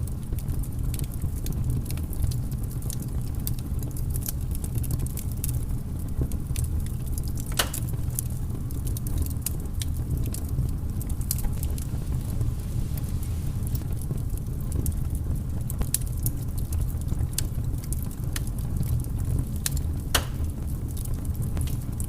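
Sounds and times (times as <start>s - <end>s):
firewood crackling: 0.0s - 22.0s
low fire rumble: 0.0s - 22.0s
loud fire pop: 7.6s - 8.0s, 20.0s - 20.5s.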